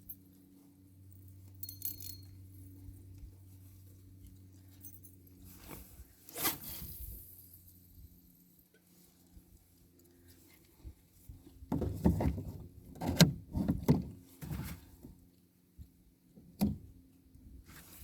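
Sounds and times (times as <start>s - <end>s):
fishing gear clinking: 1.5s - 2.6s.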